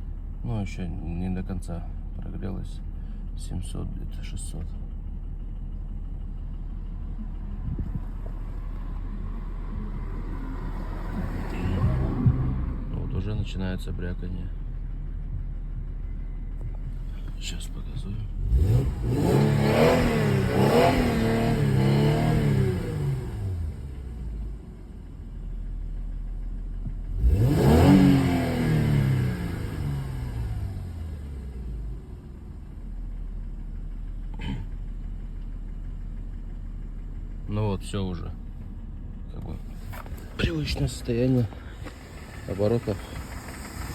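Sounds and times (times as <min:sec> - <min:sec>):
car engine idling: 0:00.0 - 0:43.9
rattling engine knock: 0:38.4 - 0:43.9.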